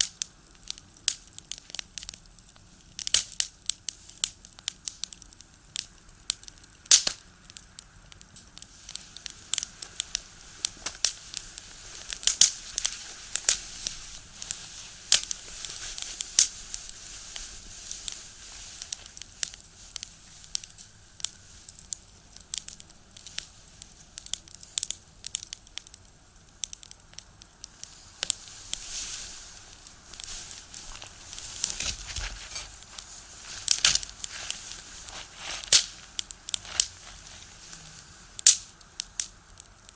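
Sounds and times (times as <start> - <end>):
firewood crackling and popping: 0.0 - 39.9
soft fire hiss: 0.0 - 39.9.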